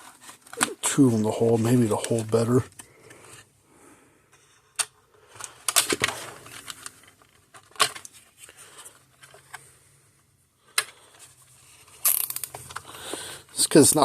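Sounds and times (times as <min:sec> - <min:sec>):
zip ties clicking and rattling: 0:12.0 - 0:12.8.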